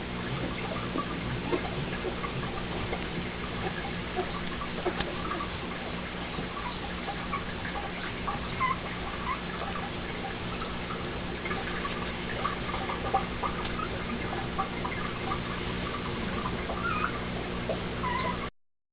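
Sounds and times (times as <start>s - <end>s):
electrical hum: 0.0s - 18.5s
puppy squeaking: 6.5s - 10.7s, 12.4s - 17.4s, 18.0s - 18.5s.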